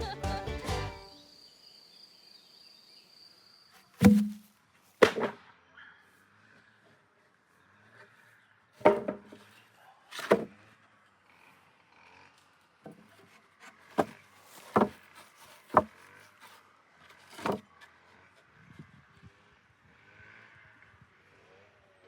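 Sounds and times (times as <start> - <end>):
sharp knocks on wood: 4.0 - 4.4.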